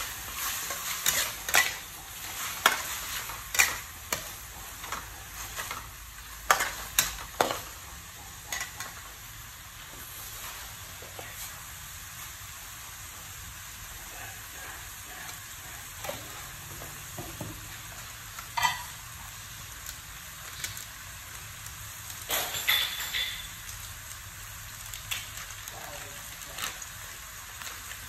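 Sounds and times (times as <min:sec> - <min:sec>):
spatula scraping wok: 0:00.0 - 0:12.3
food sizzling in oil: 0:00.0 - 0:28.0.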